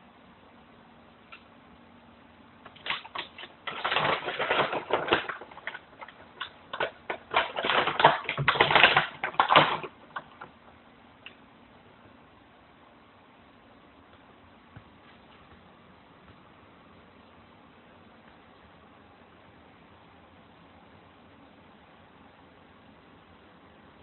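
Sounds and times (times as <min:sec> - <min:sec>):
puppy paws clicking and scraping: 0:02.7 - 0:10.5.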